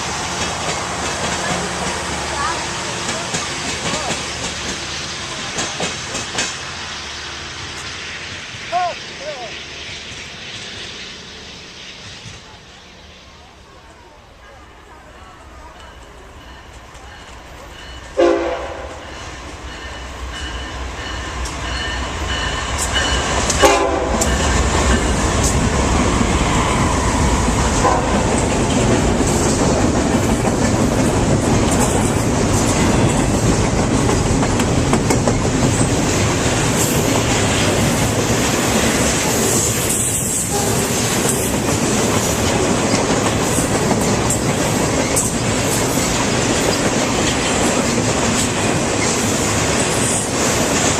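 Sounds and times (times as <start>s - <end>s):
train rumble and wheel clatter: 0.0s - 50.9s
train horn blasts: 18.2s - 19.3s, 23.6s - 24.4s, 27.7s - 28.3s, 40.4s - 41.0s.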